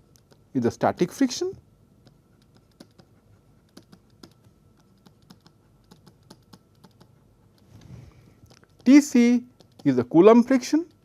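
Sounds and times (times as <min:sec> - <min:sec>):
pen writing clicks and taps: 0:00.1 - 0:00.5, 0:02.0 - 0:10.1.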